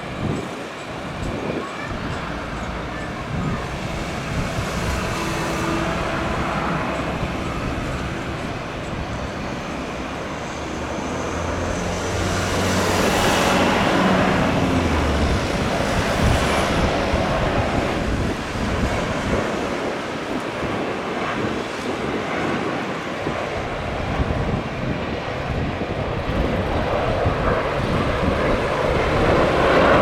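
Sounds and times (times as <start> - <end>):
jet airliner engine rush: 0.0 - 30.0
low engine drone: 2.0 - 18.2.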